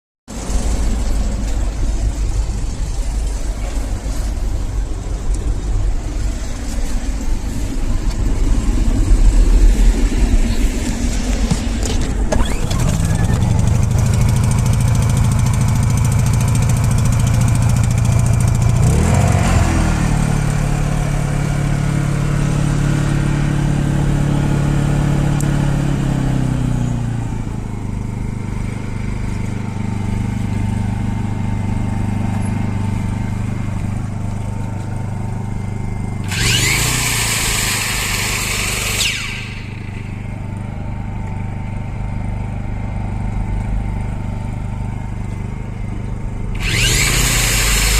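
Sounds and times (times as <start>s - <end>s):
generator engine running: 0.3s - 47.9s
high whirring noise: 0.7s - 14.2s, 36.2s - 40.5s, 46.4s - 47.9s.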